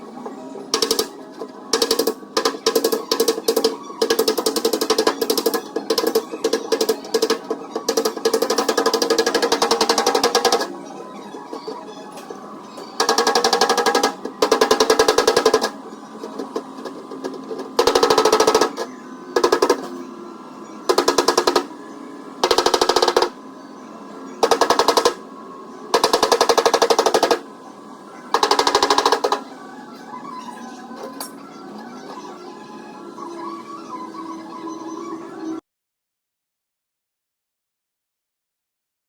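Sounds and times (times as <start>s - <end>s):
air hammer rattling on sheet metal: 13.0s - 15.8s, 16.5s - 19.9s.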